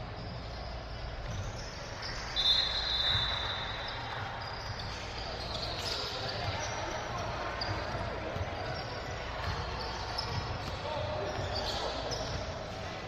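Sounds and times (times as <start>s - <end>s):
crowd noise: 0.0s - 13.0s
basketball bouncing on court: 0.2s - 13.0s
referee whistle blast: 2.3s - 4.1s.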